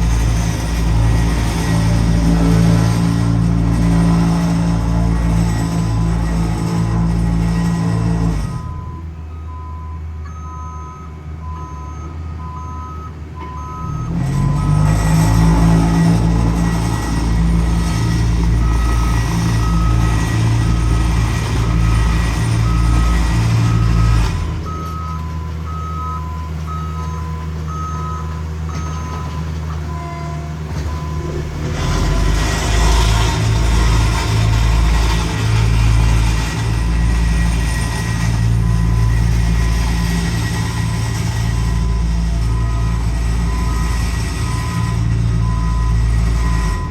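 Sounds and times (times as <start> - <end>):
engine running close by: 0.0 - 9.6, 11.3 - 46.9
diesel engines rumbling: 0.0 - 46.9
backup alarm beeping: 8.5 - 14.9, 17.6 - 32.2.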